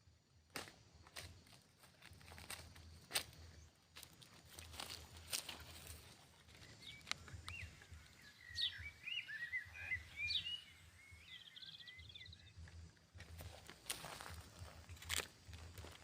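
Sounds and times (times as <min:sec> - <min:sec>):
birds chirping: 0:03.3 - 0:16.0
bird trill: 0:05.8 - 0:13.0.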